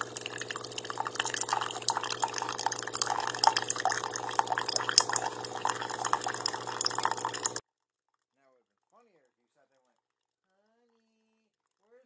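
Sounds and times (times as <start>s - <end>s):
coffee machine humming: 0.0s - 7.6s
liquid trickling into a cup: 0.0s - 7.6s.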